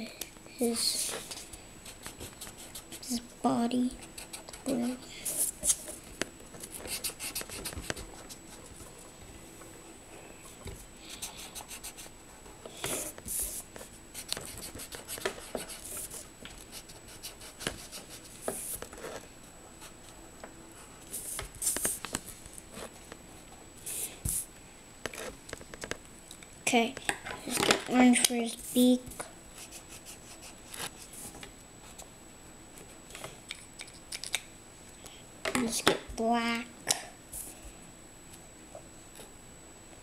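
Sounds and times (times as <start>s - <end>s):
colouring strokes on paper: 0.6s - 6.0s, 6.8s - 8.7s, 11.1s - 12.1s, 12.8s - 19.2s, 29.6s - 31.4s.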